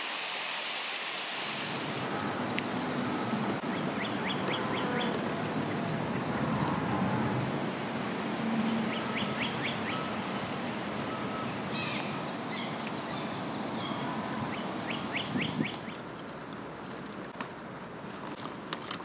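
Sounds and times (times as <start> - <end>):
steady background hiss: 0.0 - 16.1
songbirds chirping: 2.0 - 16.0.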